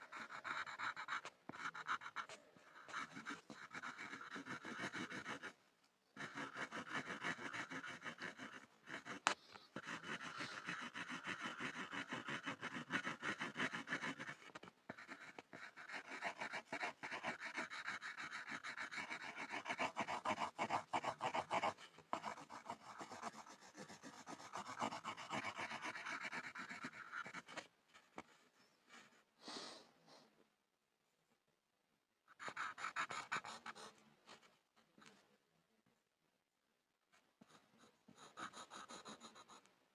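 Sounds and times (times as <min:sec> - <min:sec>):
pencil scribbling on board: 0:00.0 - 0:05.6, 0:06.2 - 0:28.5, 0:32.3 - 0:34.6, 0:37.2 - 0:39.7.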